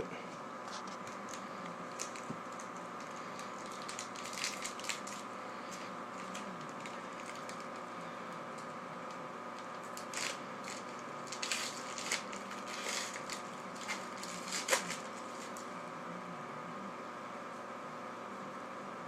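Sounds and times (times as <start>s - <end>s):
steady background hum: 0.0s - 19.0s
plastic wrap and cardboard crinkling: 0.6s - 15.7s.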